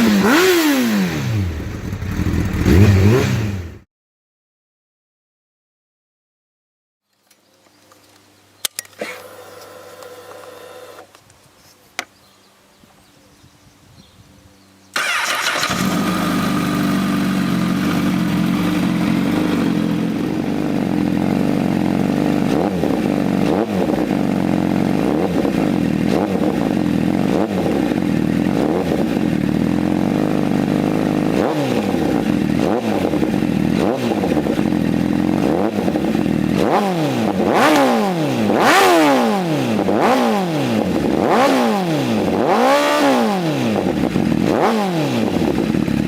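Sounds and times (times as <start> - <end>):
motorcycle engine idling: 1.2 - 3.8, 15.0 - 36.6
motorcycle starter: 15.0 - 17.2.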